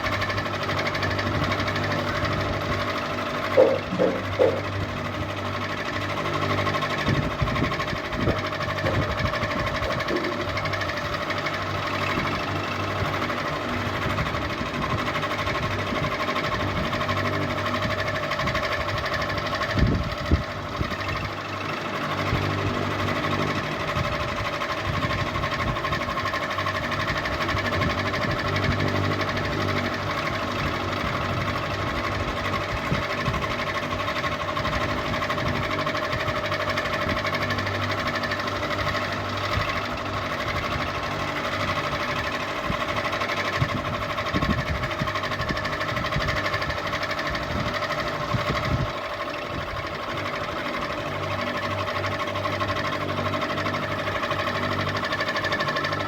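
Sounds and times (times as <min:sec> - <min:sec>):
ceiling fan humming: 0:00.0 - 0:21.2.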